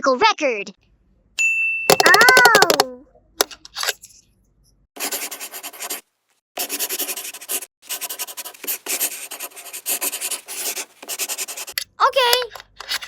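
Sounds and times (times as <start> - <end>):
pen scribbling on paper: 5.0 - 6.0, 6.6 - 11.8.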